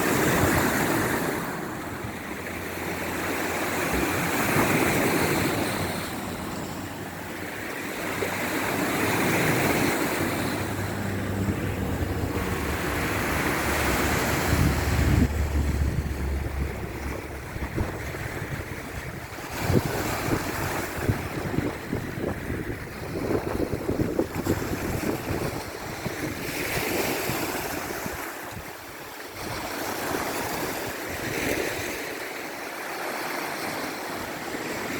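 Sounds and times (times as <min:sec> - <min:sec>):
wind on microphone: 0:00.0 - 0:31.8
sea waves washing: 0:00.0 - 0:34.9
low hum: 0:09.5 - 0:20.2.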